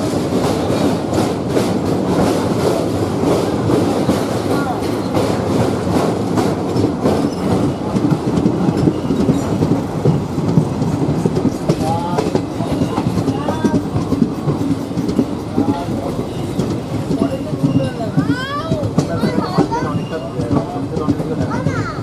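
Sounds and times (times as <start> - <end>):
train wheels clickety-clack: 0.0 - 22.0.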